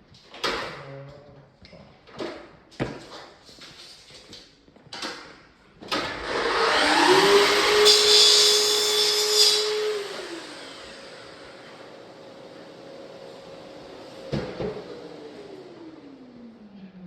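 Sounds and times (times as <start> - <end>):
electric power tool motor: 6.0 - 16.4.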